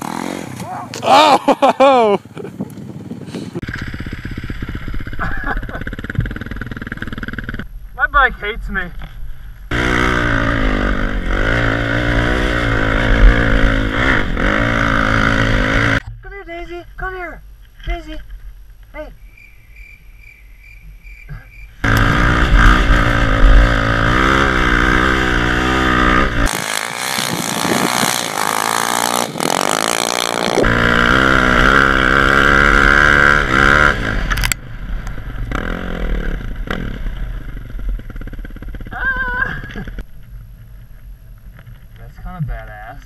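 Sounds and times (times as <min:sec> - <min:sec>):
motorcycle engine revving: 0:00.0 - 0:00.8, 0:03.6 - 0:07.7, 0:09.7 - 0:16.1, 0:21.3 - 0:40.1.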